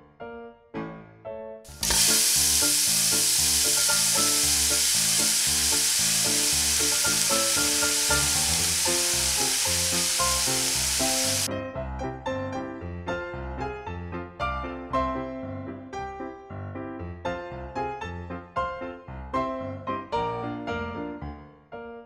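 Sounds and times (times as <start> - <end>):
background music: 0.0 - 22.0
potatoes sizzling in oil: 1.7 - 11.5.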